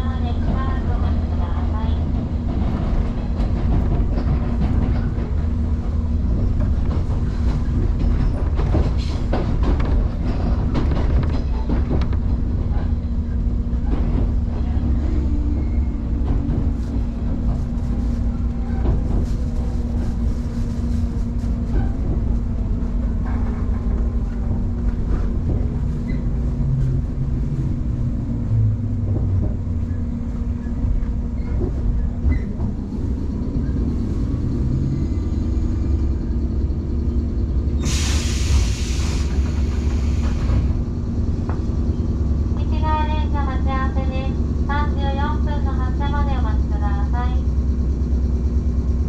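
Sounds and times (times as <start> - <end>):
train running rumble: 0.0 - 49.0
compressed air hiss: 37.8 - 40.6.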